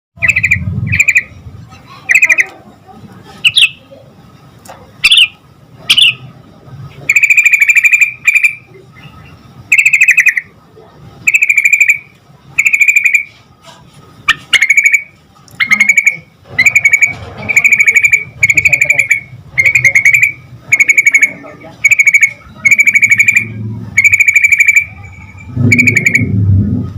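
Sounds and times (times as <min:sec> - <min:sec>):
upward-sweeping bird calls: 0:00.2 - 0:01.4, 0:02.0 - 0:02.6, 0:03.4 - 0:03.9, 0:05.0 - 0:06.3, 0:07.1 - 0:10.5, 0:11.3 - 0:13.4, 0:14.3 - 0:26.3.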